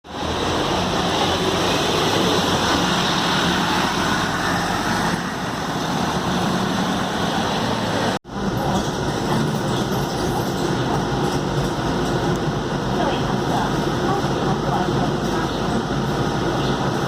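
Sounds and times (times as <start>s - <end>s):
road and wind noise: 0.0s - 17.0s
bus engine hum: 0.1s - 17.0s.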